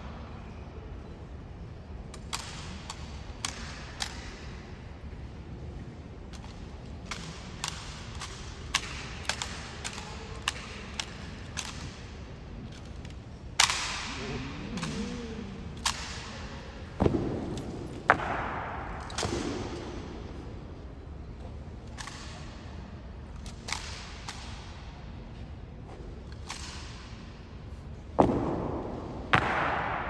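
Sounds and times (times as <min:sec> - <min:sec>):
light slaps and clicks of rifles: 0:02.0 - 0:30.0
sharp rifle cracks: 0:28.2 - 0:30.0.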